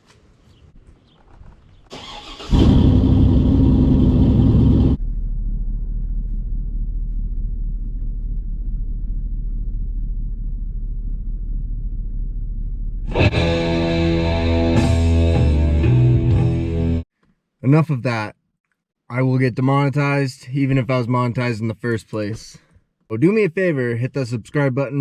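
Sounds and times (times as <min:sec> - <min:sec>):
vehicle engine revving: 0:02.0 - 0:17.0.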